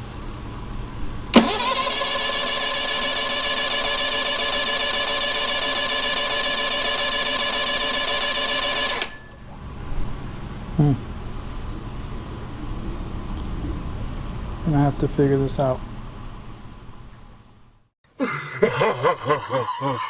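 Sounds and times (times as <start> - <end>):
electric starter cranking: 1.3 - 9.4.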